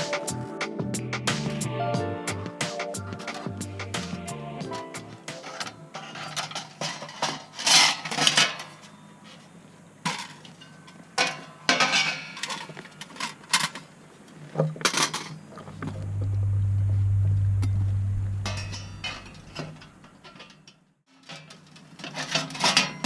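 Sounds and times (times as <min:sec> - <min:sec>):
metal plates clanking: 0:04.8 - 0:08.9, 0:17.4 - 0:20.6
low steady hum: 0:15.5 - 0:20.4.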